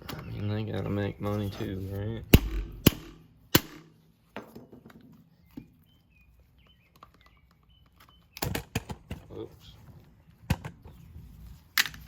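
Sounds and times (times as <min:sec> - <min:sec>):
bird chirps: 0:00.0 - 0:01.9, 0:05.1 - 0:08.6.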